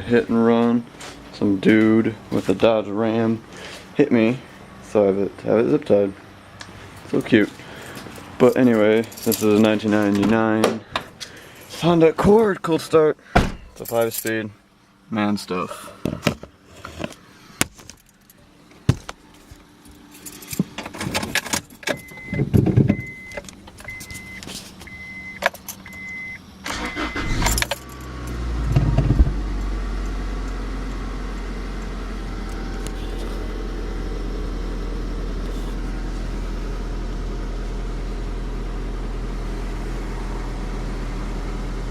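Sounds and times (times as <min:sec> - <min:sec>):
keys jangling: 0:07.8 - 0:09.7, 0:13.8 - 0:14.4, 0:20.0 - 0:22.1, 0:27.2 - 0:28.4
car engine starting and idling: 0:20.7 - 0:41.9.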